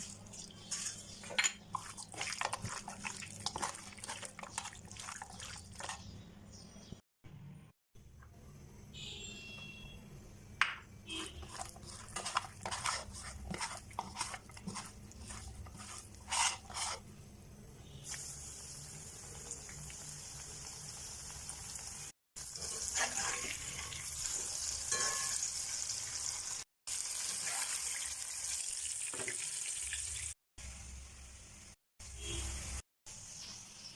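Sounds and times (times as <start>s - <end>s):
chicken sizzling in hot oil: 18.0s - 33.9s.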